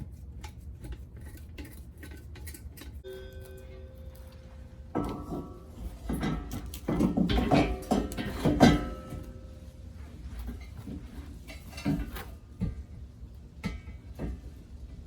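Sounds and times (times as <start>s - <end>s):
metal exhaust parts clattering: 0.4s - 15.0s.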